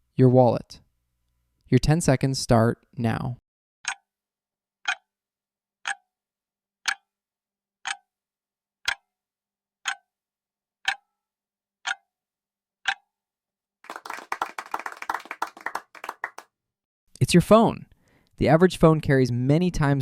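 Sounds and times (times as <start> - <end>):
clock ticking: 3.8 - 4.1, 4.8 - 5.1, 5.8 - 6.1, 6.8 - 7.1, 7.8 - 8.1, 8.8 - 9.1, 9.8 - 10.1, 10.8 - 11.1, 11.8 - 12.0, 12.8 - 13.0
people clapping: 13.8 - 16.5.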